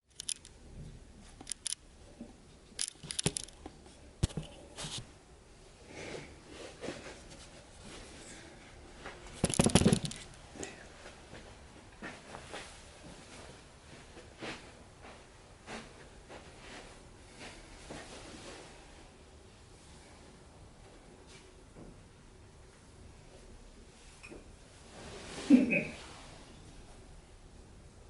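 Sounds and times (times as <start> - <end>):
handling clicks and scrapes: 0.1 - 0.5, 1.3 - 1.8, 2.8 - 5.1
clattering rustle: 9.2 - 10.4.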